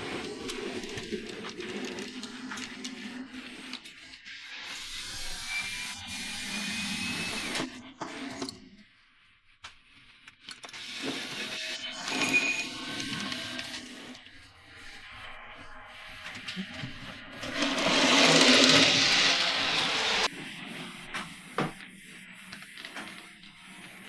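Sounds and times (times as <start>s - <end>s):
model train motor humming: 4.6s - 7.7s, 10.9s - 20.3s
wheels running on rails: 11.0s - 20.3s
thin high tone: 11.7s - 13.6s.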